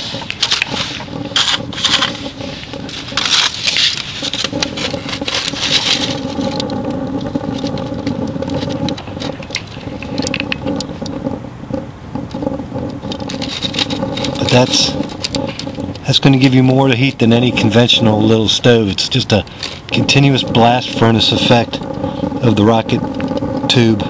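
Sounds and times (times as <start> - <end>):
crackling hiss: 0.0 - 24.0
rocket stove roaring draft: 0.0 - 24.0.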